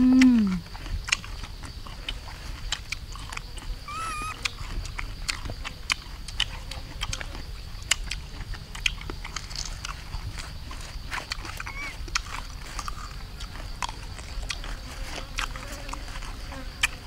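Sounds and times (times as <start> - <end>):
person humming mm: 0.0 - 0.6
crunching and chewing fruit: 0.0 - 17.0
warbling chirp: 3.9 - 4.4.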